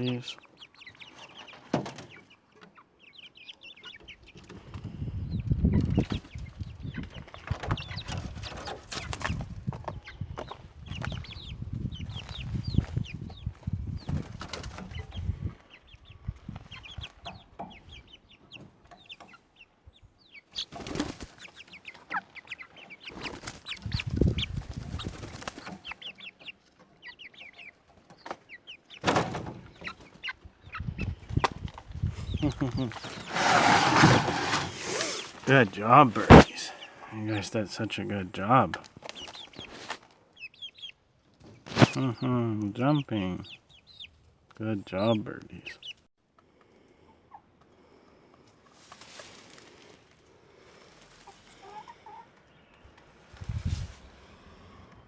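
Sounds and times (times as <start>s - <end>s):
chickens clucking: 0.0s - 55.0s
wings flapping and scuffling: 4.2s - 15.7s, 20.5s - 26.9s, 27.7s - 36.6s, 38.6s - 40.2s, 41.3s - 42.1s, 48.6s - 50.2s.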